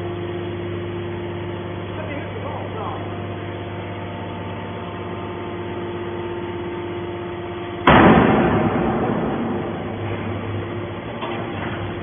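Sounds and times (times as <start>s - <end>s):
hydraulic baler humming: 0.0s - 12.0s
loud metallic bang: 7.8s - 11.7s.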